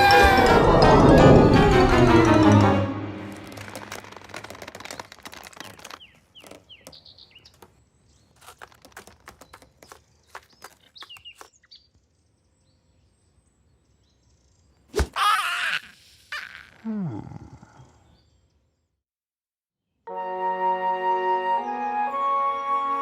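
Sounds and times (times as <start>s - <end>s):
background music: 0.0s - 4.2s, 20.1s - 23.0s
bird chirps: 9.3s - 14.9s.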